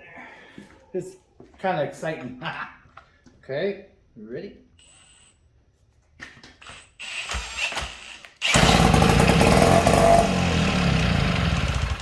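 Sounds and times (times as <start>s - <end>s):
outboard motor starting and running: 8.5s - 12.0s.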